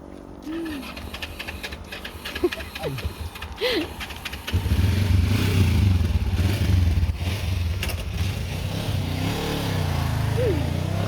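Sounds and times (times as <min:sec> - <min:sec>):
vehicle engine running: 0:00.2 - 0:11.0.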